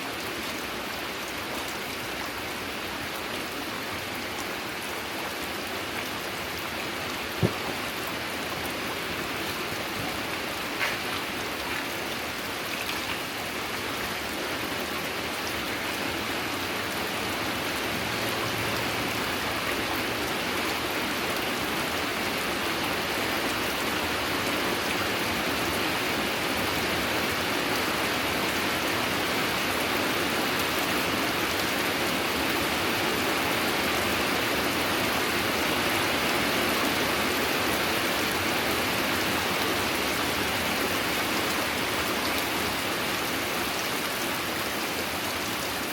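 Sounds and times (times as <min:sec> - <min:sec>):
steady rain falling: 0:00.0 - 0:45.9.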